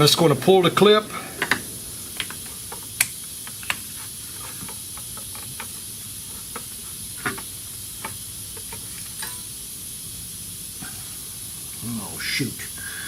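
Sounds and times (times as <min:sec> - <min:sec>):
steady high hiss: 0:00.0 - 0:13.0
small clicks and knocks: 0:01.4 - 0:09.4.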